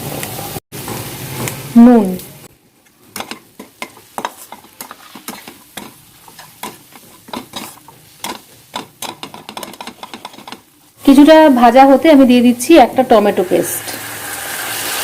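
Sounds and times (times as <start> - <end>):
faint sizzle: 0.0 - 15.0
spatula scraping in a pan: 3.1 - 10.7.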